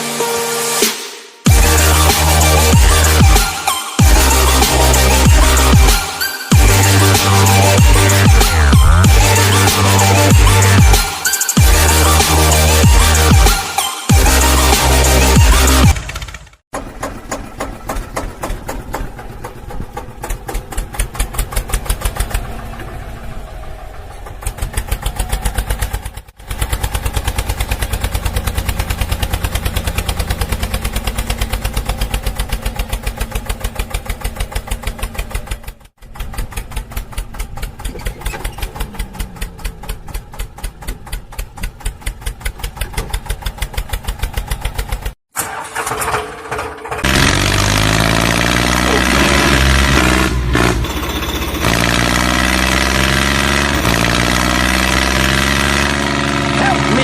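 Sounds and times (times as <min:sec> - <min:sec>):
small engine chugging: 0:15.4 - 0:52.7.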